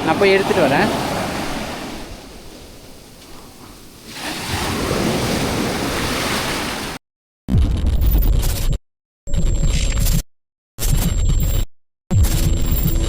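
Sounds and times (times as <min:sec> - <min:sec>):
surf washing on beach: 0:00.0 - 0:07.0.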